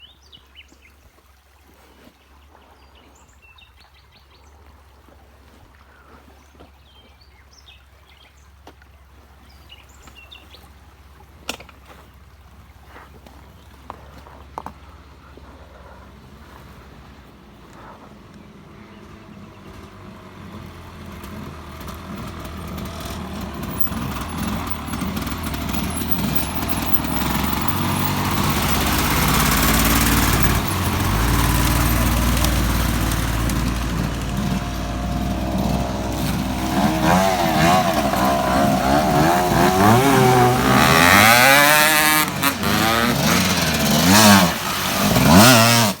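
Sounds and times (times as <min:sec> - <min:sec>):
dirt bike engine revving: 0:18.8 - 0:46.0.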